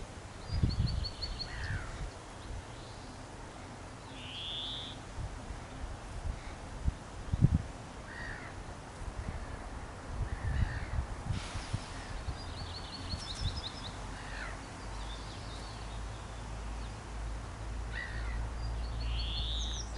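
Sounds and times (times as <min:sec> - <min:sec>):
small birds chirping: 0:00.4 - 0:05.0, 0:11.6 - 0:19.9
bird trill: 0:04.1 - 0:05.0, 0:18.0 - 0:19.9
wind rumbling: 0:09.0 - 0:12.6.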